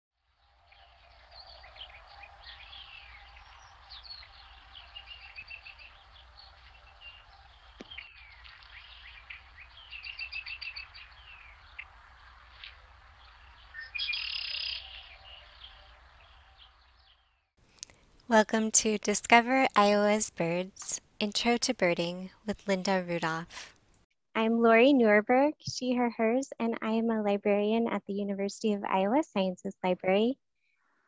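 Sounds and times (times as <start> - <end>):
birds chirping and trilling: 0.4 - 17.4
loud buzzy bird call: 0.6 - 17.2.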